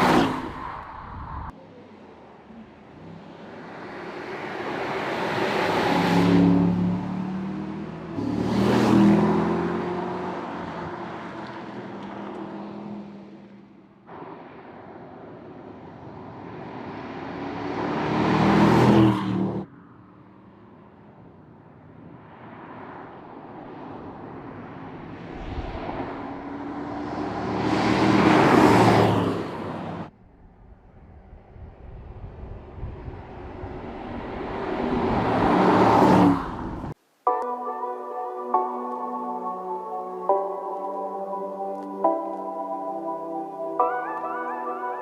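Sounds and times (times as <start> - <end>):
car exhaust passing by: 22.0 - 37.0.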